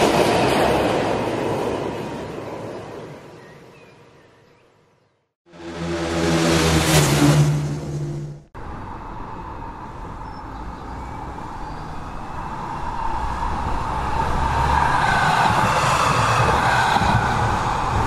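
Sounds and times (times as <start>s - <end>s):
train rumbling and rushing: 0.0s - 3.4s, 5.5s - 18.0s.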